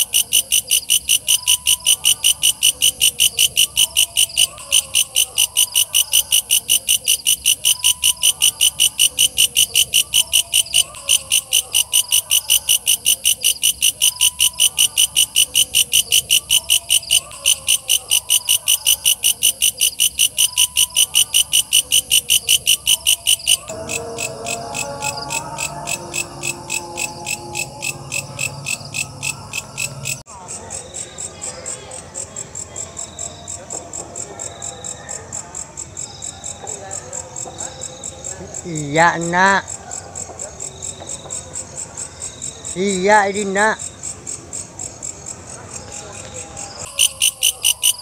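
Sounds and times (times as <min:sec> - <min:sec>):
fainter lower insect calls: 0:00.0 - 0:30.2, 0:42.0 - 0:48.0.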